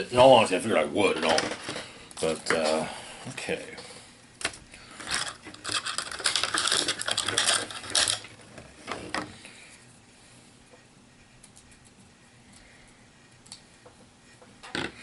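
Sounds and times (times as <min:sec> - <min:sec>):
hard plastic pieces clicking: 0:04.4 - 0:08.3
plastic packaging crinkling: 0:05.0 - 0:08.4.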